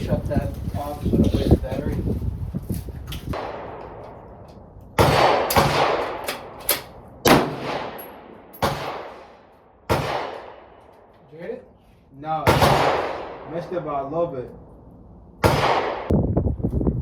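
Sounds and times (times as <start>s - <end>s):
rifle shots echoing: 3.3s - 11.1s, 12.4s - 14.0s, 15.4s - 16.1s.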